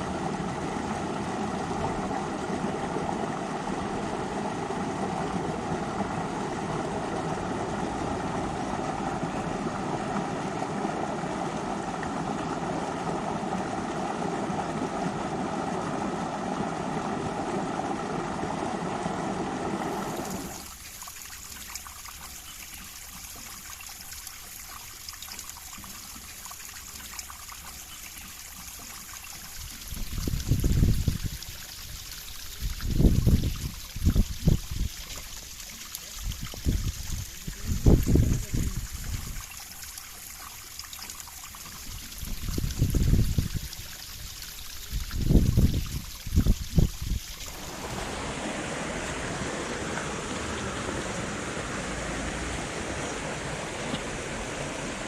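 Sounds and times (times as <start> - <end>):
trickle of flowing water: 0.0 - 55.0
river water rushing: 47.4 - 55.0.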